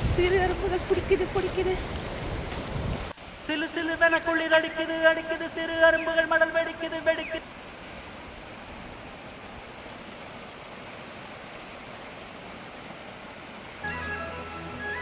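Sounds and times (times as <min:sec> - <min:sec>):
fast-flowing stream water: 0:00.0 - 0:15.0
music: 0:13.8 - 0:15.0.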